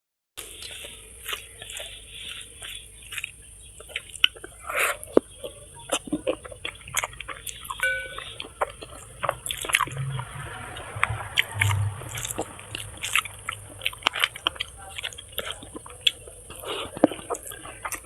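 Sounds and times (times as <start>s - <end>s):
person chewing food: 0.4s - 18.0s
brief ringing note: 7.8s - 8.3s.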